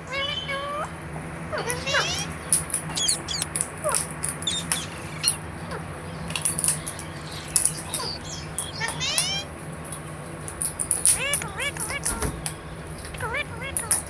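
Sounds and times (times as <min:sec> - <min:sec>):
low steady hum: 0:00.0 - 0:14.0
parakeet chirps and clicks: 0:01.6 - 0:14.0.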